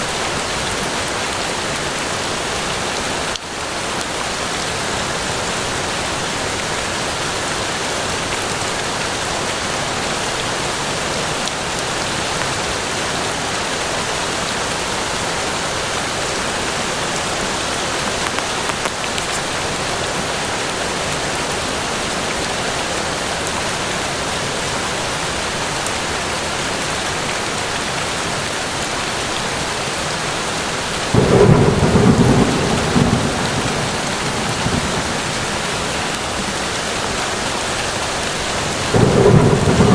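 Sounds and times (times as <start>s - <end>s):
rain falling on foliage: 0.0s - 39.9s
low thunderclap rumbling: 31.1s - 37.4s, 38.6s - 39.9s.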